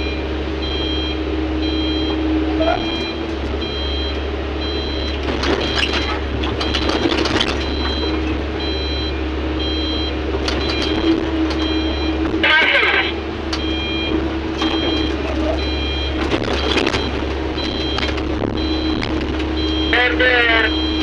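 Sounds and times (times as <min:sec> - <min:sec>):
back-up alarm beeping: 0:00.0 - 0:21.0
diesel engine drone: 0:00.0 - 0:21.0
clattering: 0:02.8 - 0:09.1, 0:10.3 - 0:19.9.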